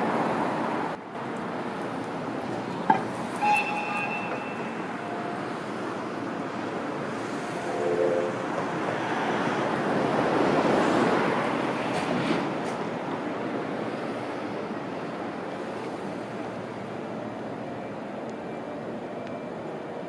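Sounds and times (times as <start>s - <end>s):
train running on rails: 0.0s - 20.0s
high wheel squeal: 3.2s - 5.8s.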